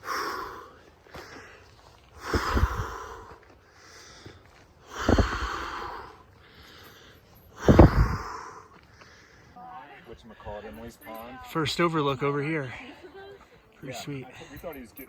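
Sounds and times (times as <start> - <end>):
breath buffeting microphone: 0.0 - 9.6
heavy breathing: 0.0 - 11.2.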